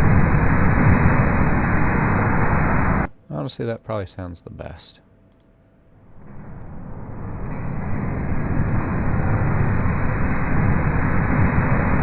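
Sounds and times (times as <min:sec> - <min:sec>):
low rumbling fire crackle: 0:00.0 - 0:03.2, 0:06.0 - 0:12.0.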